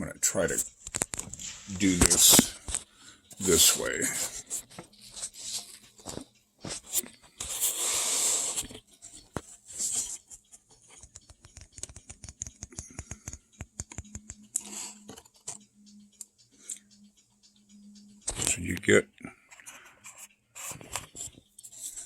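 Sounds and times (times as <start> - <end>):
model parts clicking and tapping: 0.4 - 7.7, 8.5 - 16.4.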